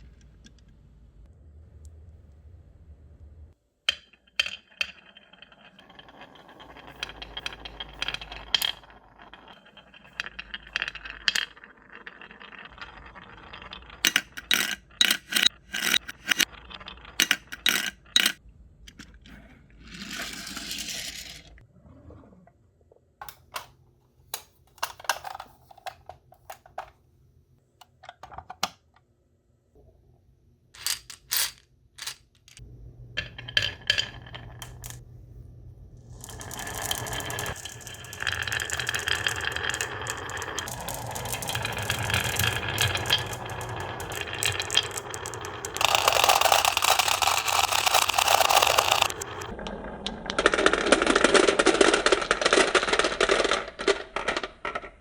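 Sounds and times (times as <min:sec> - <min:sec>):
glass marbles rolling and clacking: 0:03.9 - 0:18.4, 0:19.9 - 0:21.6, 0:30.8 - 0:32.6, 0:33.2 - 0:35.0, 0:36.1 - 0:55.0.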